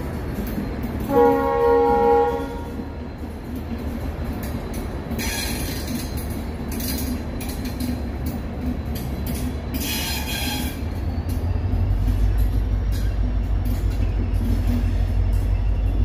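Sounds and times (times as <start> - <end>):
train wheels rumbling on rail: 0.0 - 16.0
train horn blast: 1.0 - 2.9.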